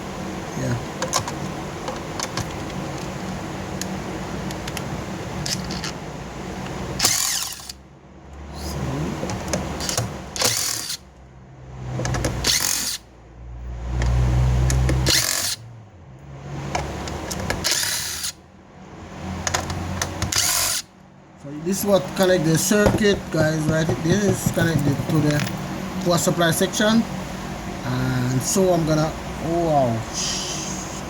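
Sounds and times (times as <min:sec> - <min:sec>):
power drill-driver running: 0:07.0 - 0:07.8, 0:10.4 - 0:11.0, 0:12.4 - 0:13.0, 0:15.0 - 0:15.6, 0:17.6 - 0:18.4, 0:20.3 - 0:20.8.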